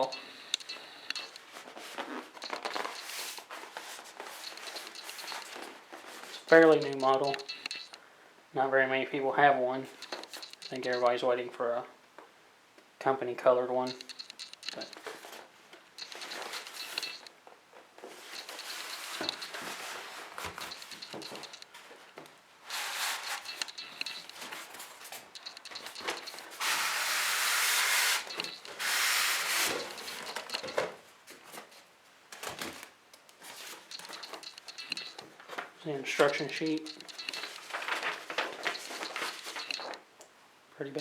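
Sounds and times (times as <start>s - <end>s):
packaging rustling and scraping: 1.3s - 6.8s, 18.0s - 35.7s, 36.6s - 40.0s.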